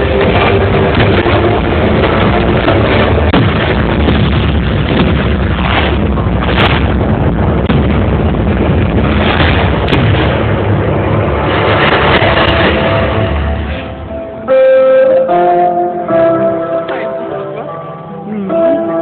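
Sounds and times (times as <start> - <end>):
fireworks bursting: 0.0 - 14.1
sharp firework cracks: 0.5 - 13.9.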